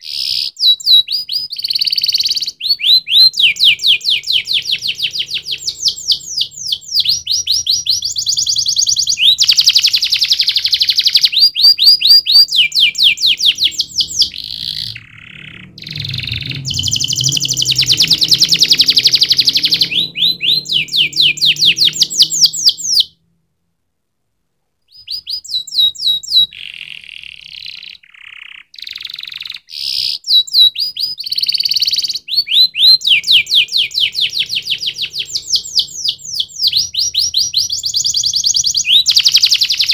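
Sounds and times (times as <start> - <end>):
canary singing trills: 0.0 - 23.2, 24.9 - 39.9.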